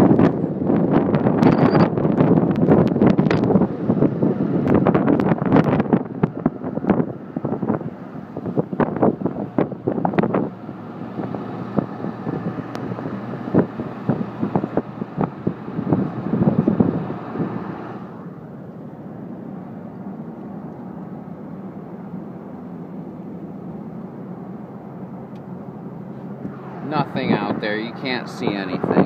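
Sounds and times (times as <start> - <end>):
wind buffeting microphone: 0.0 - 18.6, 26.4 - 29.0
car rumble: 0.0 - 29.0.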